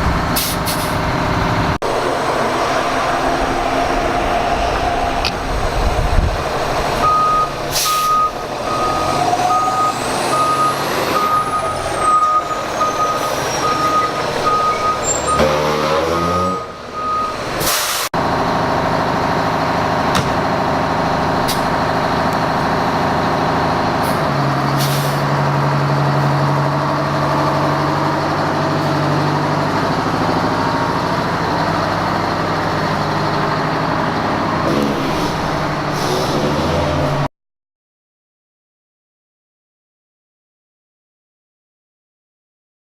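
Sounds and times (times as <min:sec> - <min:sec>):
diesel engines running: 0:00.0 - 0:37.3
backup alarm beeping: 0:07.0 - 0:15.5, 0:17.0 - 0:17.4
air brake hisses: 0:07.7 - 0:08.2, 0:17.6 - 0:18.1, 0:24.8 - 0:25.2.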